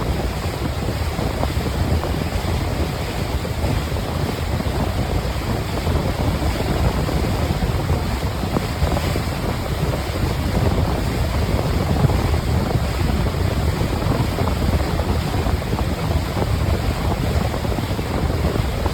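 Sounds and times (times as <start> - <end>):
water noise from moving boat: 0.0 - 18.9
wind buffeting microphone: 0.0 - 18.9.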